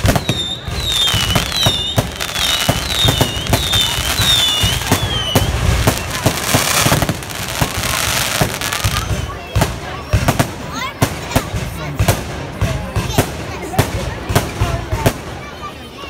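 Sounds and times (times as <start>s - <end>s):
firework whistles: 0.0s - 10.5s
firework crackling hiss: 0.0s - 12.4s
firework bangs and pops: 0.0s - 15.8s.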